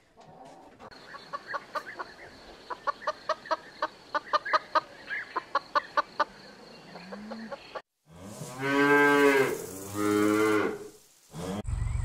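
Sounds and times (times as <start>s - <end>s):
chicken clucking: 0.0s - 7.8s.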